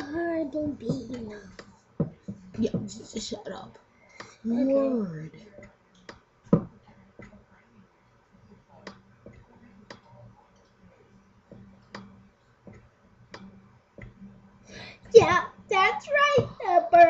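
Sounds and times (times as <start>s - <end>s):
faint clicks and taps: 0.0s - 3.1s, 5.5s - 7.6s, 8.7s - 14.3s, 16.2s - 17.0s
low steady hum: 0.0s - 17.0s.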